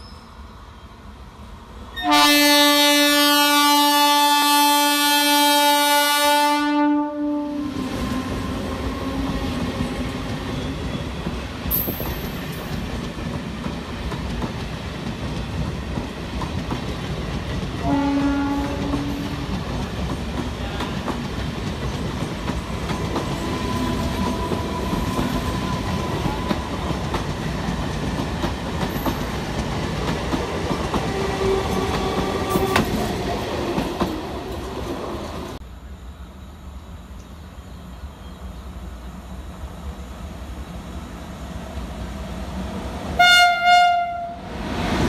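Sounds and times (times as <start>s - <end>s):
train rumbling past: 0.0s - 45.0s
train horn blast: 2.0s - 10.0s, 17.8s - 19.5s, 43.2s - 44.5s.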